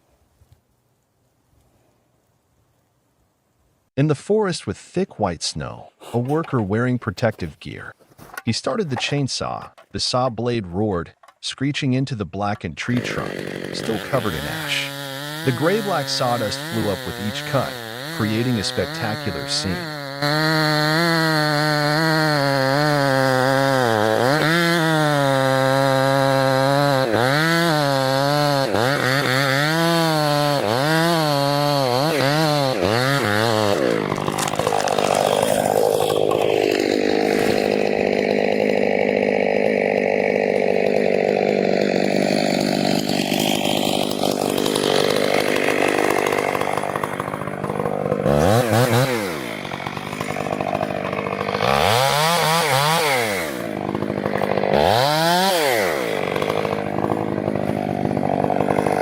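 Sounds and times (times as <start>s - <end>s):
chainsaw cutting wood: 12.6s - 59.0s.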